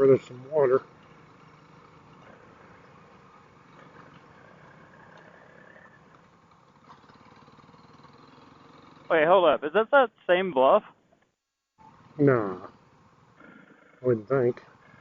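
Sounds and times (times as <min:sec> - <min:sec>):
faint motorcycle engine running: 0:00.0 - 0:09.1.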